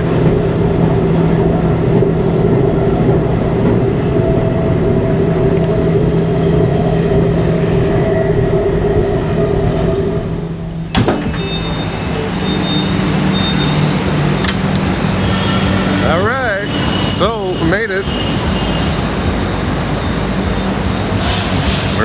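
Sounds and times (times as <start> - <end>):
train rumble: 0.0 - 22.0
high whining tones: 3.2 - 15.4.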